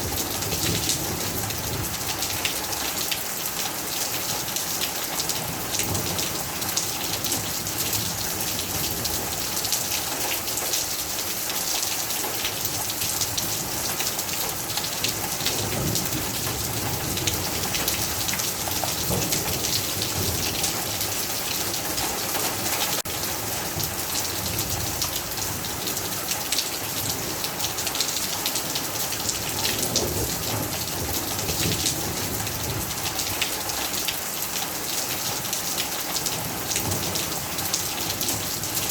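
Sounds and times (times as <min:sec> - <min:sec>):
heavy rain: 0:00.0 - 0:38.9
low rumbles of thunder: 0:29.4 - 0:33.1.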